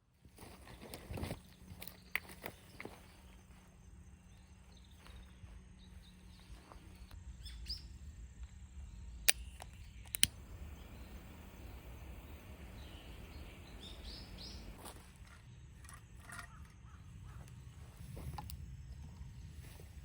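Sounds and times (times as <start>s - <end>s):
wind rumble: 7.1s - 20.0s.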